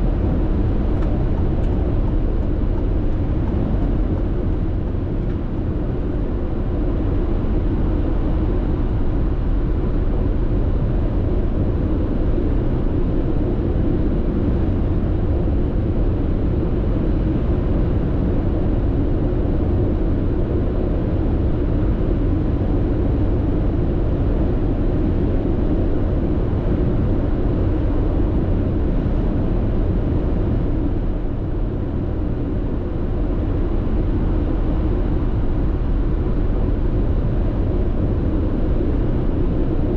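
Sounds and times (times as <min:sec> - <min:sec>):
road and tyre noise in car cabin: 0:00.0 - 0:39.9.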